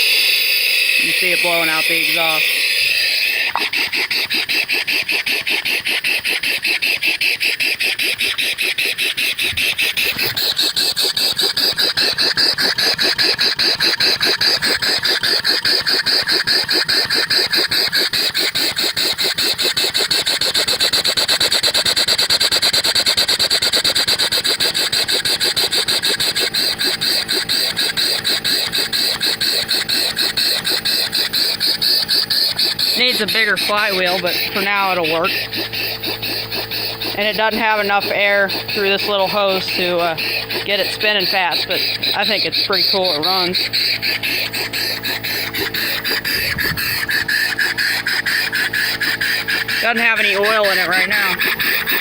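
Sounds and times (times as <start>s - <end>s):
air engine puffing and hissing: 0.0s - 13.7s, 26.1s - 52.0s.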